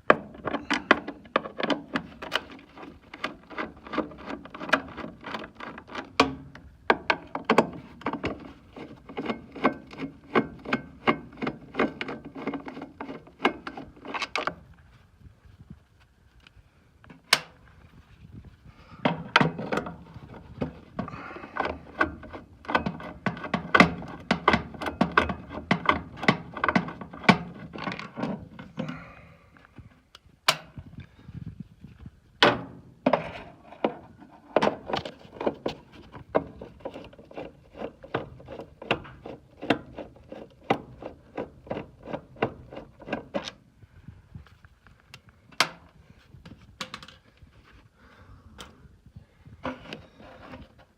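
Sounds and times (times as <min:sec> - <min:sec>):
metal parts clicking and knocking: 0:21.0 - 0:28.9.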